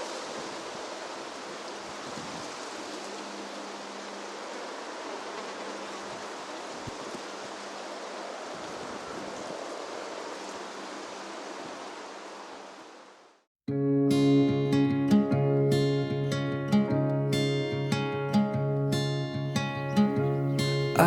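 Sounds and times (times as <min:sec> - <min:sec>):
wind rustling through barley: 0:00.0 - 0:13.3.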